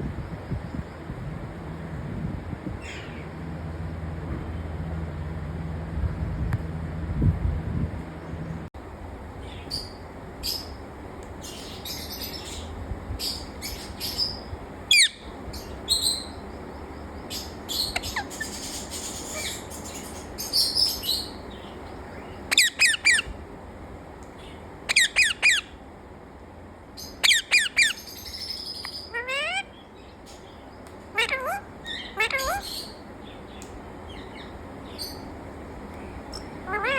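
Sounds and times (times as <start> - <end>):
parrot chirping and squawking: 13.2 - 15.3, 17.4 - 21.3, 22.5 - 23.3, 24.9 - 25.8, 27.0 - 29.8, 31.1 - 33.0, 36.2 - 36.9.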